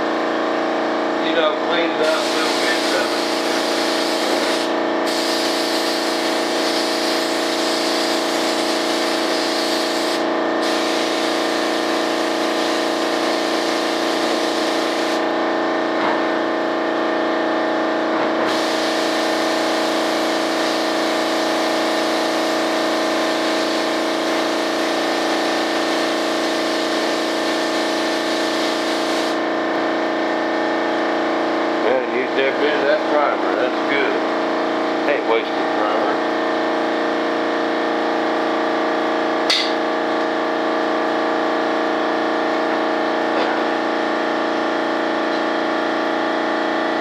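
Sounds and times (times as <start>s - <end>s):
steady mechanical hum: 0.0s - 47.0s
spray gun hissing: 2.0s - 11.8s, 12.5s - 15.2s, 18.5s - 21.0s, 24.5s - 29.4s.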